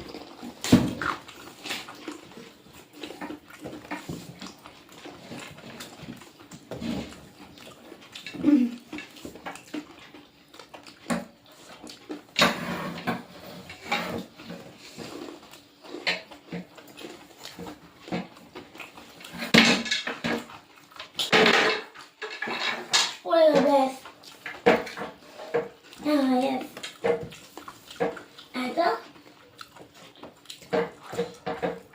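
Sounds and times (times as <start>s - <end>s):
dishes and cutlery clinking: 21.2s - 23.7s.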